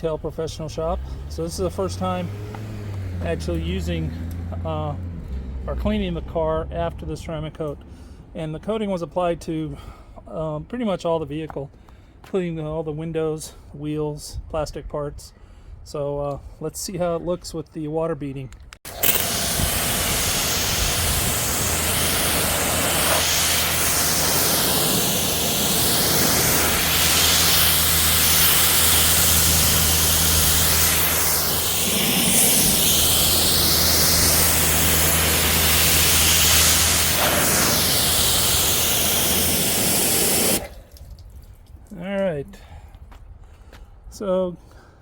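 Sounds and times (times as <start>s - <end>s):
pressure washer spray hissing: 18.9s - 40.8s
pressure washer motor hum: 18.9s - 40.9s.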